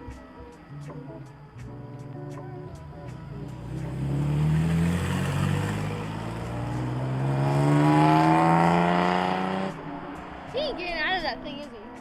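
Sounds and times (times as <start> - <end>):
car engine accelerating hard: 3.0 - 10.5.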